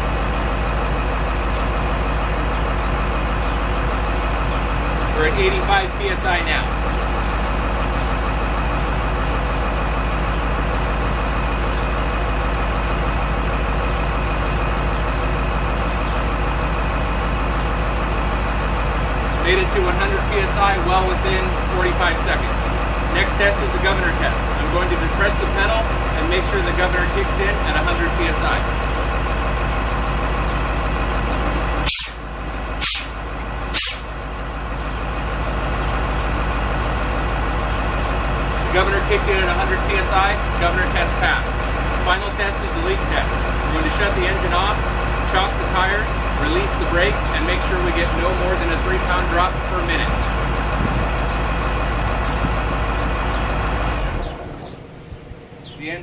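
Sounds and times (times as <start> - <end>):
diesel engine idling: 0.0 - 56.0
air brake hisses: 31.9 - 32.2, 32.8 - 34.1.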